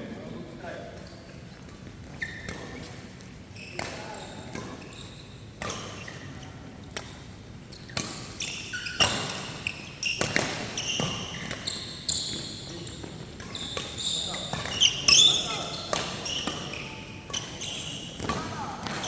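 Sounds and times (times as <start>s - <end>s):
shoes squeaking on court: 1.0s - 19.0s
rackets hitting shuttlecock: 10.2s - 11.7s, 13.4s - 19.0s.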